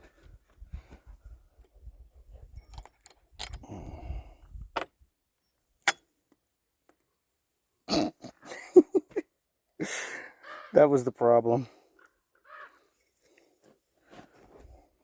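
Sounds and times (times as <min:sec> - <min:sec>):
small metal parts clinking: 0:02.5 - 0:03.7.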